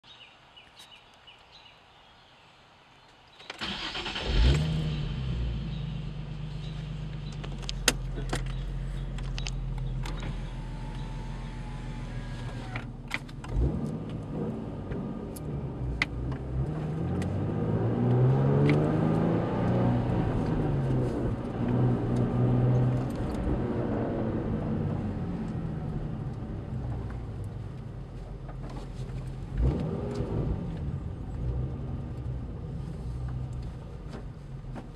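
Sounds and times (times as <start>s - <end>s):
car engine idling and revving: 3.6s - 34.9s.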